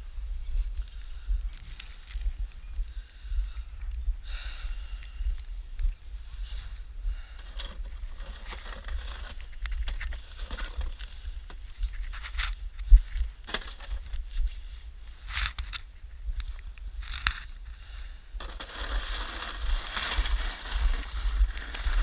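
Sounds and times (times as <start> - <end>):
snow shovel scraping snow: 18.4 - 22.0.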